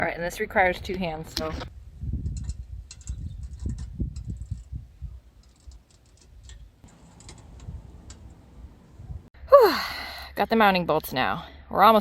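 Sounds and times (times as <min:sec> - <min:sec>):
metal bolts clicking: 0:05.4 - 0:08.7.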